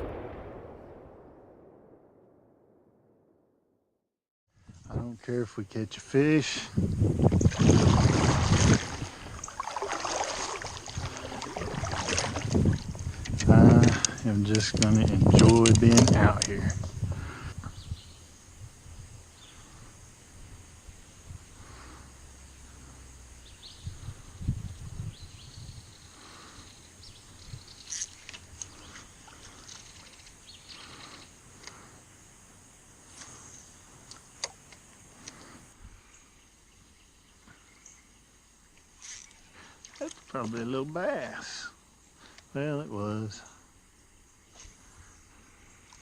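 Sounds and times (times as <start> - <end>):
insect drone: 5.9 - 15.0, 15.8 - 46.0
birds chirping: 6.1 - 15.0, 21.0 - 31.9
wind buffeting microphone: 6.6 - 19.3, 23.4 - 27.8
faint small ticks: 27.4 - 32.0, 33.1 - 35.7, 38.7 - 40.6, 42.2 - 42.5, 45.7 - 46.0.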